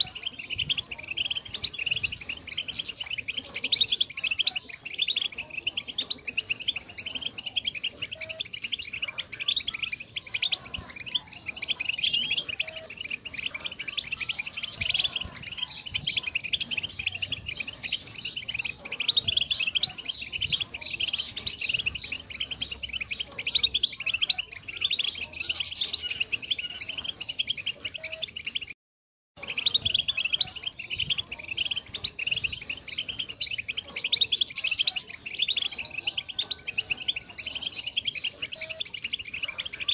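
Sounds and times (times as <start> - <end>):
goldfinches twittering: 0.0 - 28.7.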